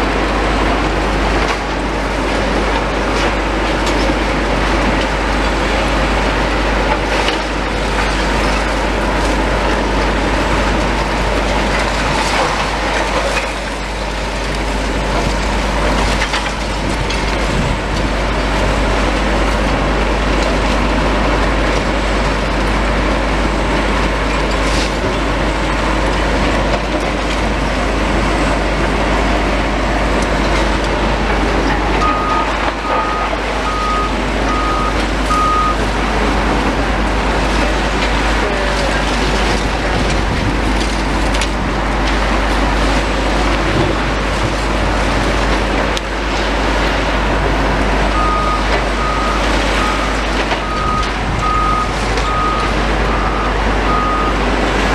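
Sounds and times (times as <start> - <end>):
demolition machinery churning: 0.0 - 54.9
reversing alarm beeping: 31.9 - 35.8, 48.1 - 54.5.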